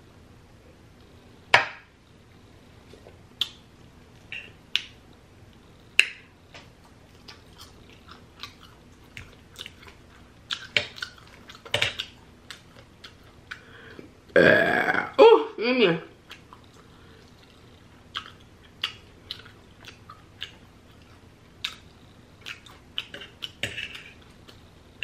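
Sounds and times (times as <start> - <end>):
chewing and mouth noises: 6.6 - 14.0, 16.2 - 25.0.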